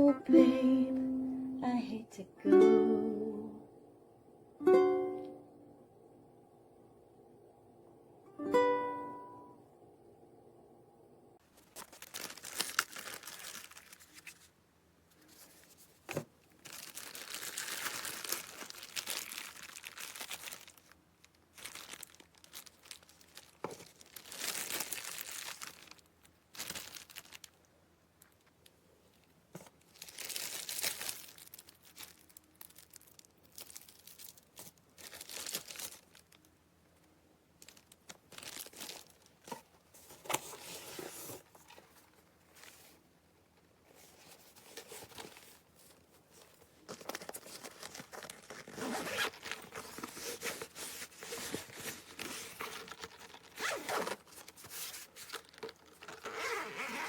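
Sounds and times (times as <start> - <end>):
packaging crinkling: 11.5 - 14.5, 16.5 - 27.6, 28.2 - 36.6, 37.5 - 43.0, 44.0 - 57.0.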